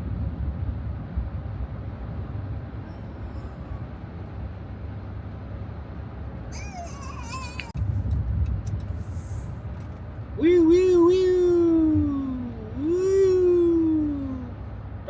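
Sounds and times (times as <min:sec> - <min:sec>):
car cruising road rumble: 0:00.0 - 0:15.0.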